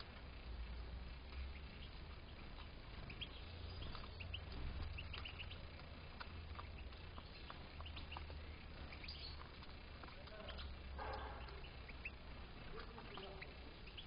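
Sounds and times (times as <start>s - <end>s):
steady low hum: 0.0s - 14.0s
finches chirping: 1.2s - 14.0s.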